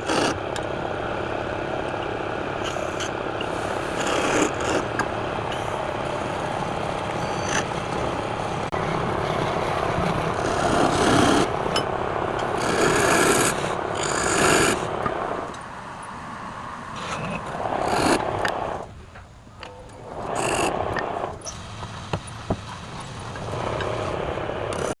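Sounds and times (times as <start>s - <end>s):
wood lathe turning tool scraping: 0.0s - 0.4s, 2.7s - 5.8s, 10.0s - 11.5s, 12.4s - 14.9s, 17.0s - 18.8s, 20.2s - 21.0s.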